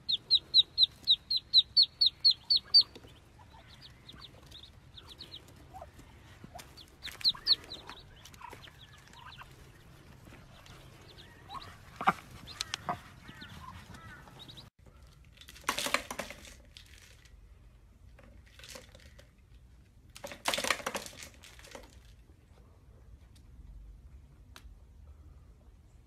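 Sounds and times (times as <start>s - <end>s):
ducklings peeping: 0.0s - 14.7s
plastic toy rattling: 15.0s - 17.4s, 18.2s - 19.4s, 20.2s - 22.2s.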